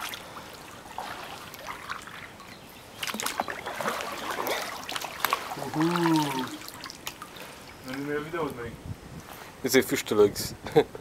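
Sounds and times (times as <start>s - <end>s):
kayak paddles splashing in water: 0.0s - 8.1s.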